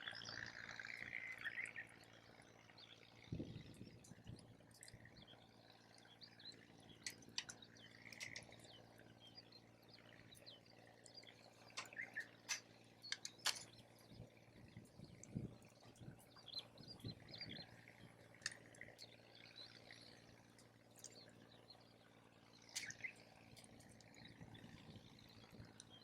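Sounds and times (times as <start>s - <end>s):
faint bird chirps: 0.0s - 26.0s
campfire crackling: 4.0s - 19.3s, 22.6s - 24.4s.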